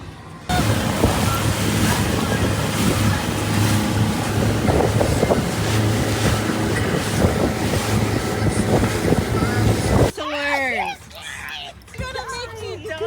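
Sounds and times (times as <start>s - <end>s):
motorboat engine drone: 0.5s - 10.1s
wind buffeting microphone: 0.5s - 10.1s
rushing water: 0.5s - 10.2s.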